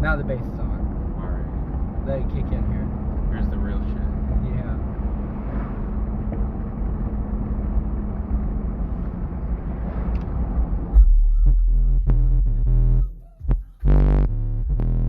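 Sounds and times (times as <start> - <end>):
truck cabin road and engine rumble: 0.0 - 15.0
booming subwoofer bass music: 10.9 - 15.0.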